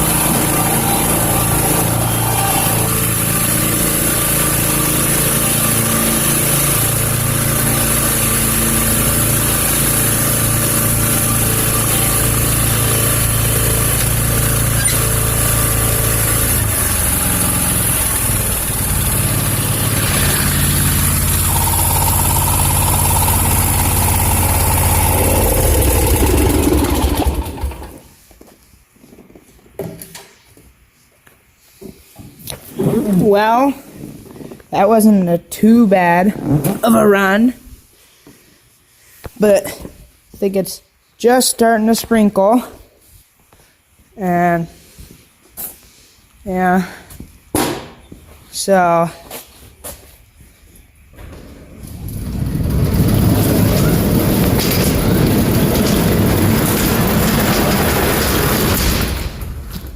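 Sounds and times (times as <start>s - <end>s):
mower engine running: 0.0s - 28.1s, 51.8s - 59.8s.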